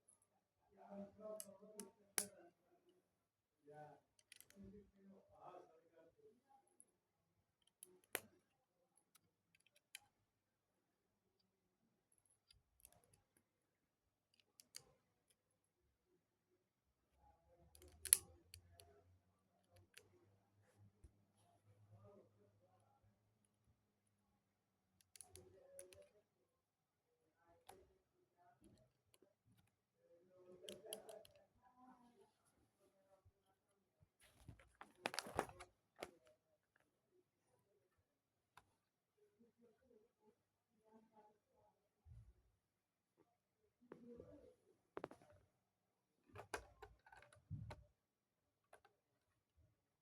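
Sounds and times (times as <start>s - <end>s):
plastic bricks clicking together: 17.7s - 18.3s.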